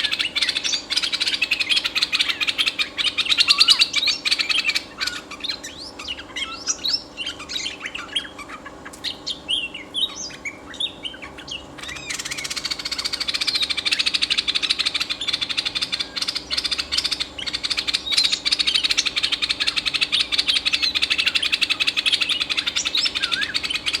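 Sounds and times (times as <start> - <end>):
bird whistling and chattering: 0.0 - 24.0.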